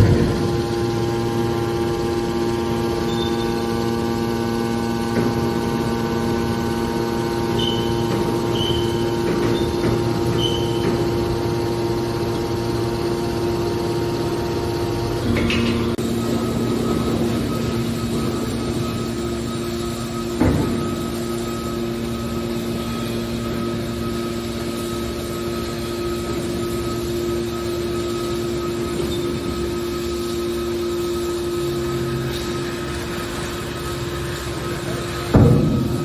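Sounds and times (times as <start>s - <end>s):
machine clunk: 0.0s - 1.6s, 5.0s - 13.6s, 14.7s - 23.7s, 32.2s - 36.0s
hydraulic baler humming: 0.0s - 36.0s
short high squeaks: 7.5s - 11.2s.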